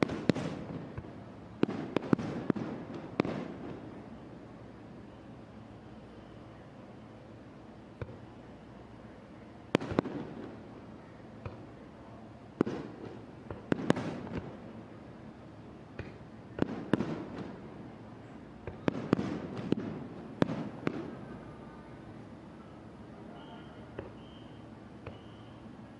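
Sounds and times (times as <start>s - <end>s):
fireworks bursting with rumble: 0.0s - 5.2s, 9.6s - 21.6s, 23.9s - 25.7s.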